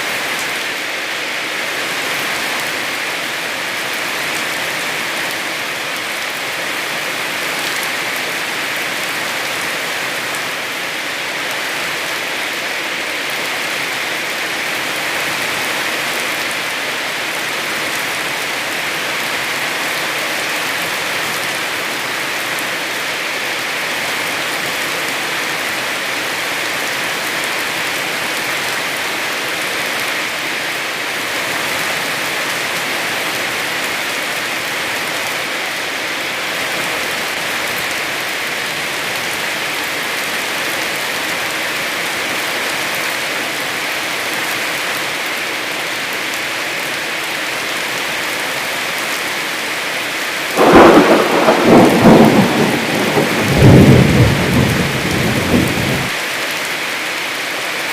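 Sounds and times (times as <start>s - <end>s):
heavy rain falling: 0.0s - 57.9s
loud thunder clap: 50.6s - 56.1s.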